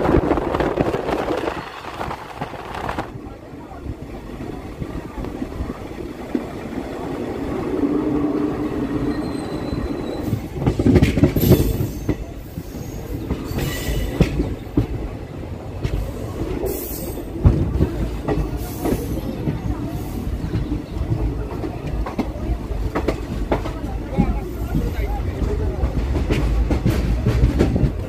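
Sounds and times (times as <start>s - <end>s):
train coach rumbling on rails: 0.0s - 28.0s
wheels clacking over rail joints: 7.7s - 15.2s
high wheel squeals: 8.8s - 10.5s.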